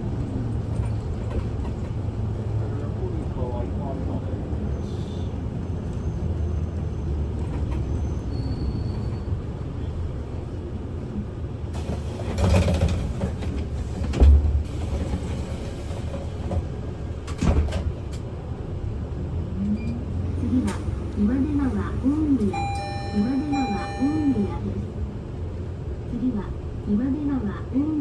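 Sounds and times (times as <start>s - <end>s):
bus diesel engine running: 0.0s - 28.0s
bus doors thumping: 11.8s - 18.3s.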